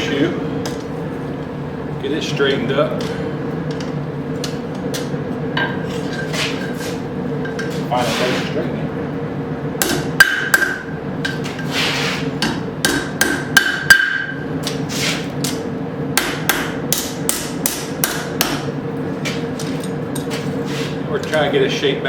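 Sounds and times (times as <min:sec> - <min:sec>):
steady hum: 0:00.0 - 0:22.0
hammer striking metal on anvil: 0:09.8 - 0:11.4, 0:12.4 - 0:14.4, 0:16.2 - 0:18.7.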